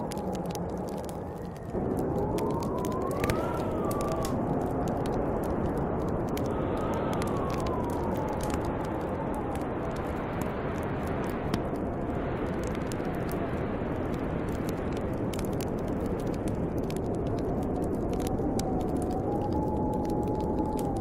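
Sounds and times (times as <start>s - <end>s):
wind blowing: 0.0s - 21.0s
wood fire crackling: 0.0s - 21.0s
wavering wind whistle: 1.2s - 4.5s.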